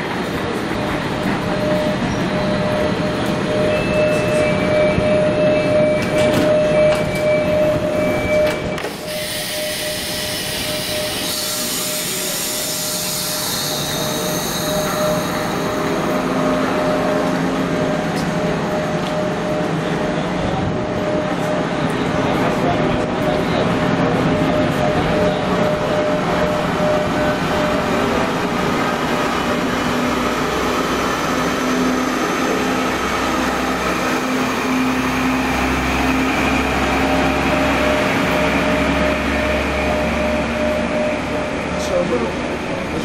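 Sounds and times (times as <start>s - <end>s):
diesel train engine whining: 0.0s - 43.0s
two-tone beeping: 0.6s - 12.8s, 36.3s - 42.1s.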